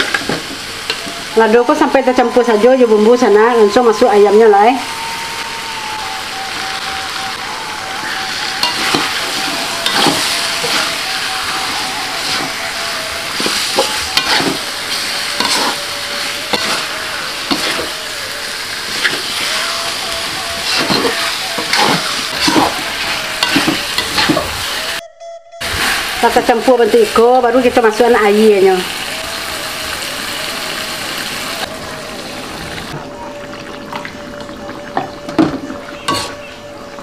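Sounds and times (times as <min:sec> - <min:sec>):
chicken sizzling in a wok: 0:00.0 - 0:25.0, 0:25.7 - 0:33.0
metal spatula scraping a pan: 0:08.4 - 0:18.0, 0:18.9 - 0:25.0, 0:36.1 - 0:36.4.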